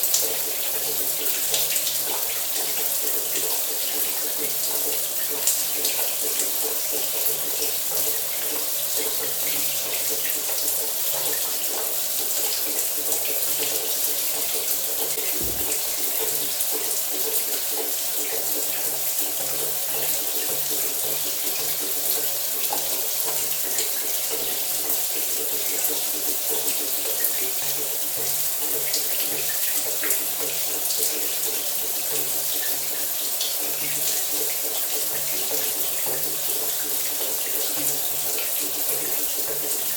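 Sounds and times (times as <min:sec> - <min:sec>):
shower spray running: 0:15.2 - 0:17.2
low thump: 0:15.3 - 0:16.3.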